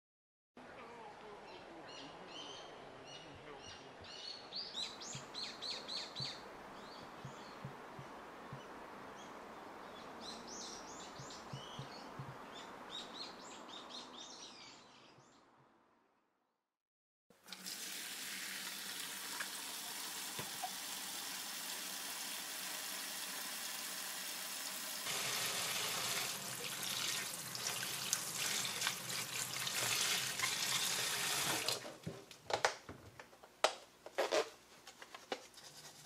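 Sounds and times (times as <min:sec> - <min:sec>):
outdoor background hiss: 0:00.6 - 0:15.9, 0:17.4 - 0:35.9
songbirds chirping: 0:00.8 - 0:15.6.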